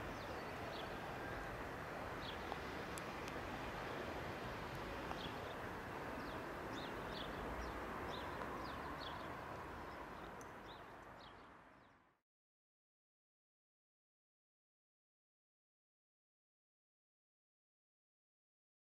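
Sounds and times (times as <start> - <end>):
outdoor background hiss: 0.0 - 12.2
small birds chirping: 5.1 - 5.6, 6.2 - 12.0.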